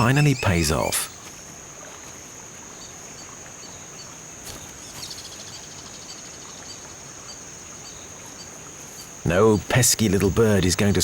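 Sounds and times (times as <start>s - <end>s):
bird twitter: 0.0s - 1.2s
faint insect chirps: 0.0s - 11.0s
high insect drone: 0.0s - 11.0s.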